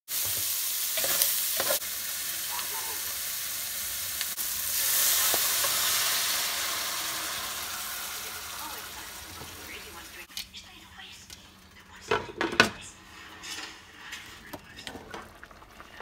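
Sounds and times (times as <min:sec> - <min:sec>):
sausage sizzling in frying pan: 0:00.1 - 0:10.3
spatula scraping pan: 0:01.0 - 0:01.8.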